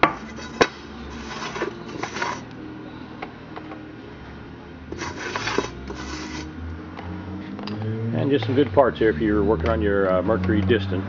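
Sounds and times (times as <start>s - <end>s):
metal parts scraping: 0.0s - 2.4s, 4.9s - 6.5s.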